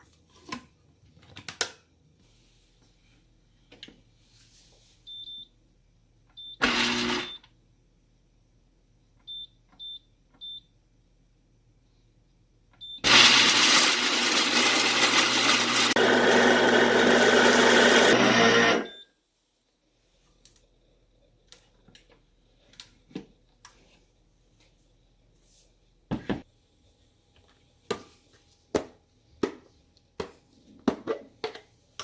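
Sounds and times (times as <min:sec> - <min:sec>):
blender button beeps: 0:06.4 - 0:07.5, 0:16.6 - 0:19.1
blender motor running: 0:06.6 - 0:07.4, 0:13.0 - 0:18.9.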